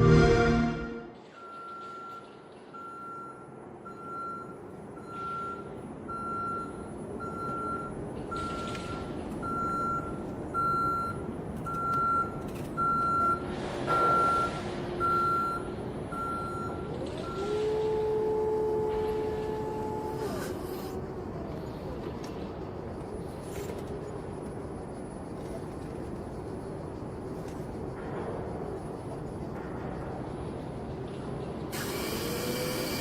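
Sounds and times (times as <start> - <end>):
two-tone hum: 0.0 - 22.0
engine and traffic noise: 1.2 - 33.0
reversing alarm beeping: 1.3 - 17.6.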